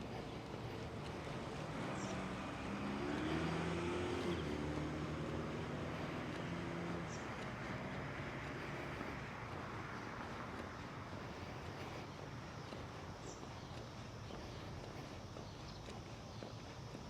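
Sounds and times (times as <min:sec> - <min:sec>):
car driving past: 0:00.9 - 0:12.1.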